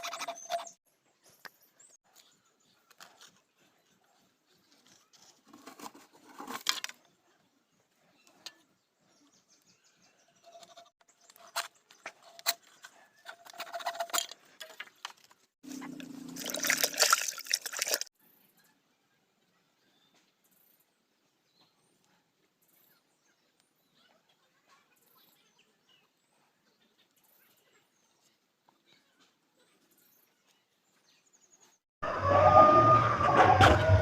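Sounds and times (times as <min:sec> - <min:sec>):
scraping and rasping bamboo: 0:00.0 - 0:00.8, 0:04.6 - 0:07.0, 0:10.4 - 0:18.1.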